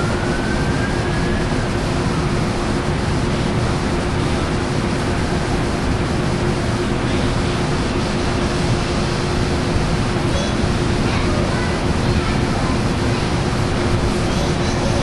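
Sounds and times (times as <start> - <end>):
distant siren: 0.0 - 2.9
diesel locomotive idling: 0.0 - 15.0.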